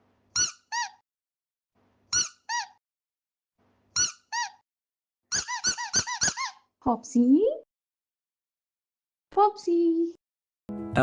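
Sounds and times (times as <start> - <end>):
short high-pitched squeaks: 0.4 - 1.0, 2.1 - 2.8, 4.0 - 4.6, 5.3 - 6.6.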